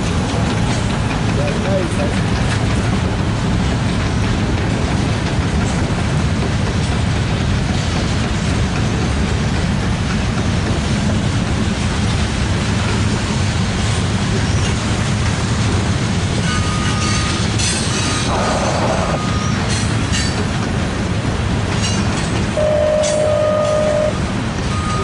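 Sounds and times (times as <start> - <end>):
train wheels rumbling on rails: 0.0 - 25.0
high-pitched wheel squeals: 22.6 - 25.0.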